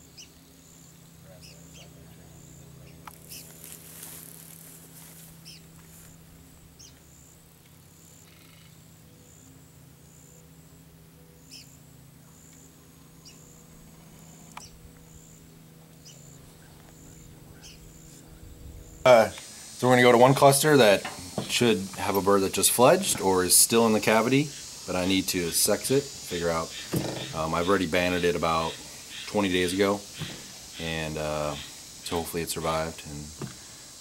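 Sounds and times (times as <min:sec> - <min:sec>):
steady low hum: 0:00.0 - 0:34.0
sharp bird chirps: 0:01.4 - 0:03.5.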